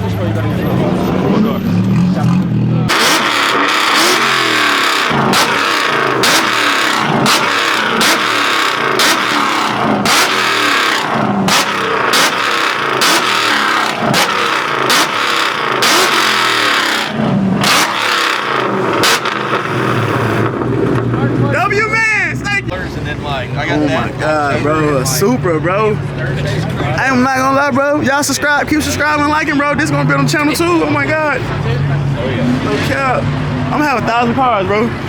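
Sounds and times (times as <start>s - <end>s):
car engine revving: 0.0s - 35.0s
sharp cracks: 2.9s - 21.2s.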